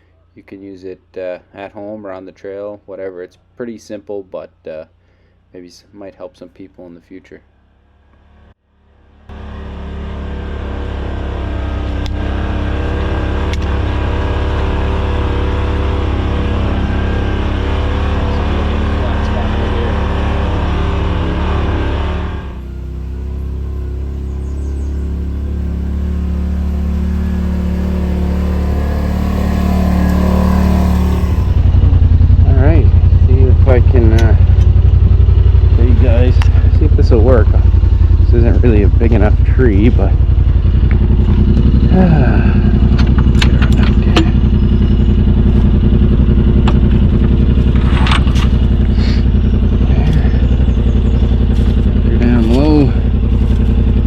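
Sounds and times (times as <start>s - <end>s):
utility vehicle engine running: 7.5s - 54.0s
clinks and scrapes: 47.7s - 48.6s.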